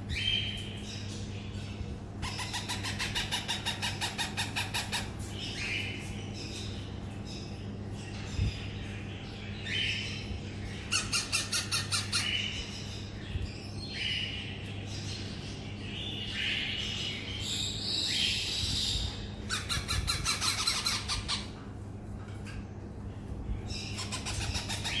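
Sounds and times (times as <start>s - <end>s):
parrot chicks squawking: 2.2s - 6.0s, 9.9s - 12.8s, 18.0s - 21.6s, 23.8s - 25.0s.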